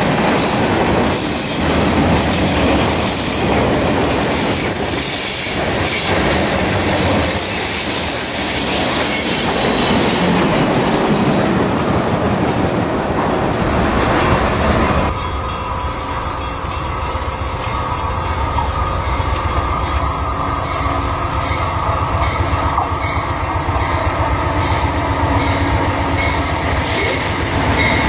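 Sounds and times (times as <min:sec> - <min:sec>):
freight cars rumbling over rails: 0:00.0 - 0:28.0
high wheel squeal: 0:01.0 - 0:10.3, 0:15.1 - 0:28.0.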